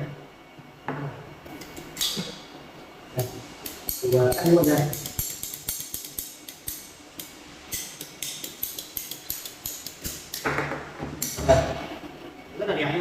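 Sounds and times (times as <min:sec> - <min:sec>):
pipe cutter clicking: 0:03.6 - 0:10.5.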